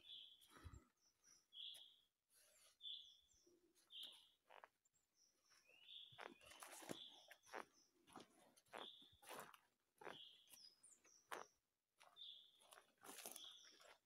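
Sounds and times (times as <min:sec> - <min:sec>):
high bird calls: 0:05.5 - 0:11.5
footsteps in dry leaves: 0:06.2 - 0:10.2, 0:12.6 - 0:14.0.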